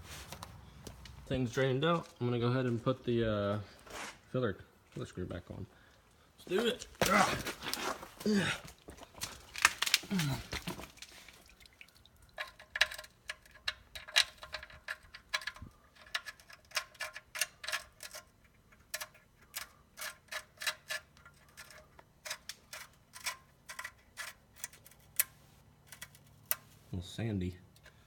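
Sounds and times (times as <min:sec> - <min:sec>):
small metallic clicks and taps: 0:12.3 - 0:26.7.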